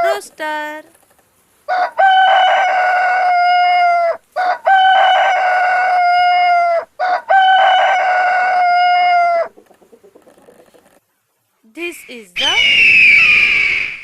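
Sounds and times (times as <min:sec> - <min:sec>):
rooster crowing: 0:01.7 - 0:09.6, 0:12.4 - 0:14.0.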